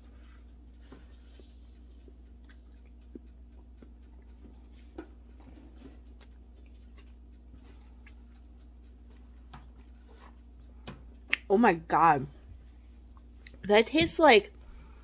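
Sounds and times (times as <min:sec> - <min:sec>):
low steady hum: 0:00.0 - 0:15.0
person chewing: 0:00.1 - 0:11.4.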